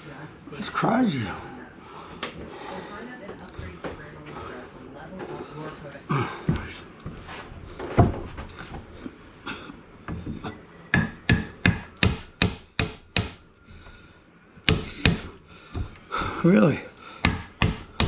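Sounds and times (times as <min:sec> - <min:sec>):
hammer knocking on wood: 0:11.0 - 0:13.4, 0:14.7 - 0:16.4, 0:17.2 - 0:18.0.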